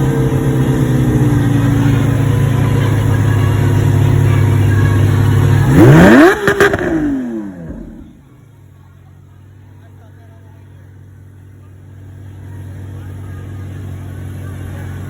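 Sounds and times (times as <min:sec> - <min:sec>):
exhaust cracks: 0:00.0 - 0:08.4
sports car engine revving: 0:00.0 - 0:08.4.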